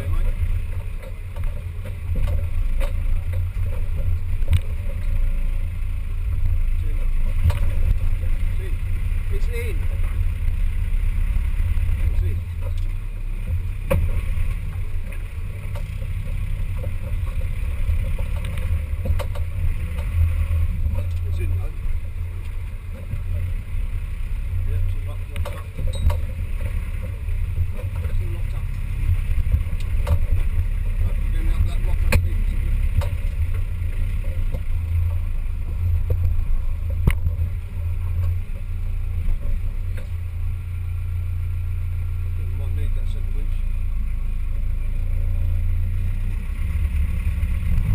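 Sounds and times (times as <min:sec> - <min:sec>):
engine low rumble: 0:00.0 - 0:47.9
knocks and clicks: 0:00.3 - 0:05.2, 0:07.3 - 0:08.1, 0:12.0 - 0:21.3, 0:25.2 - 0:38.7.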